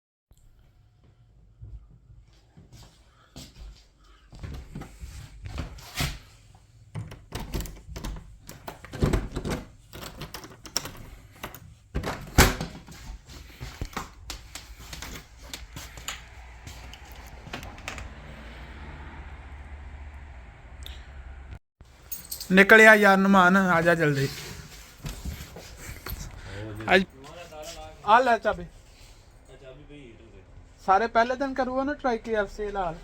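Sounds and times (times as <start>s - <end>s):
knocks clicks and thuds of handling: 6.9s - 16.3s.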